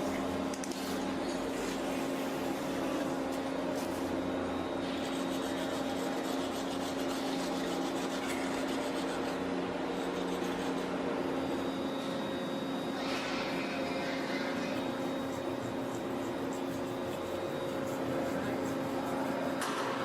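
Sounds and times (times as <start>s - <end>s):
power tool rasping: 14.2s - 19.6s.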